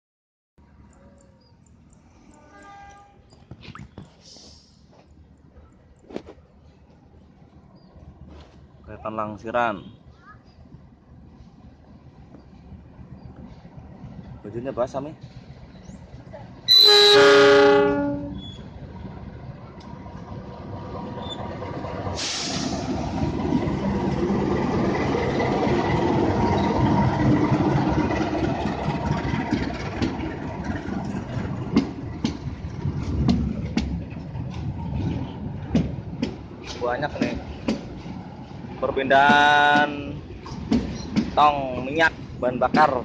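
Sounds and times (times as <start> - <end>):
locomotive horn blast: 2.3 - 3.3, 16.7 - 18.5
freight train rolling by: 6.5 - 43.0
sudden hiss: 22.2 - 23.0
wheels clacking over rail joints: 22.8 - 43.0.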